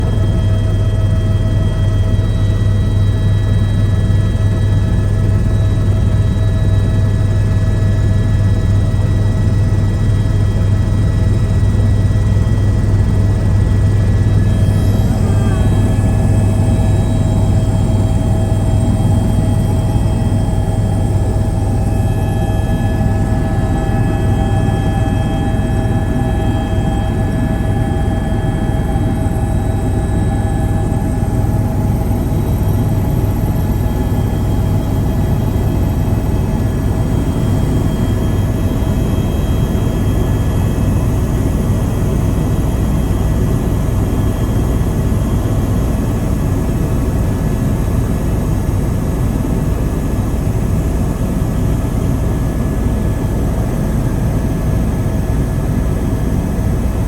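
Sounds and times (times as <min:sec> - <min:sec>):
high whine: 0:00.0 - 0:42.4
helicopter engine and rotor drone: 0:00.0 - 0:57.0.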